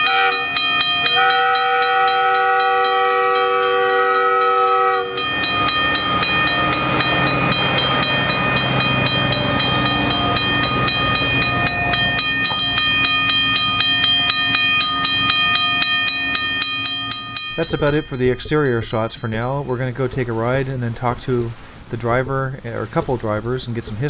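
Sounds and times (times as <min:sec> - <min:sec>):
rail car horn chord: 0:00.0 - 0:20.2
steady ringing tone: 0:00.0 - 0:20.7.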